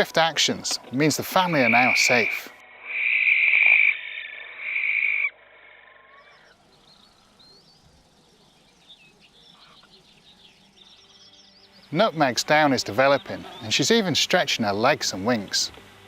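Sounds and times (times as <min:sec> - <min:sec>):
faint songbird chirping: 0:00.0 - 0:16.0
owl hissing screeches: 0:01.9 - 0:06.5.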